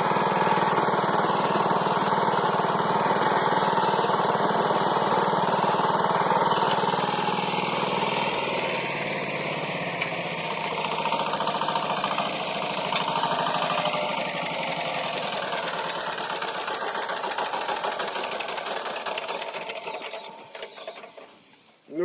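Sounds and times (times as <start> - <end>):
tiller engine chugging: 0.0 - 21.5.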